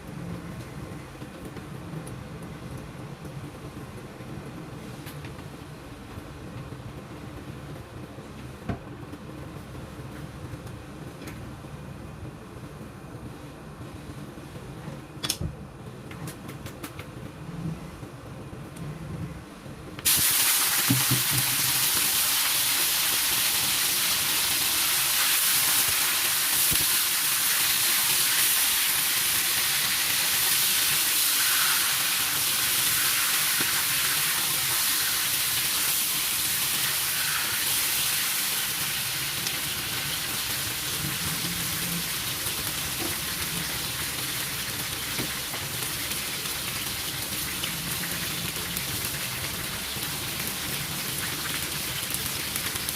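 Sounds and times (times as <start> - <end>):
food sizzling in hot oil: 20.1 - 52.9.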